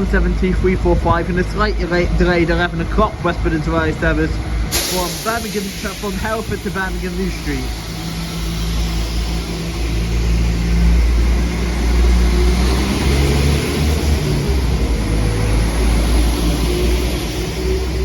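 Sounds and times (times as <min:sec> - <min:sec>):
train diesel engines running: 0:00.0 - 0:18.0
wheels hissing on rail: 0:04.2 - 0:18.0.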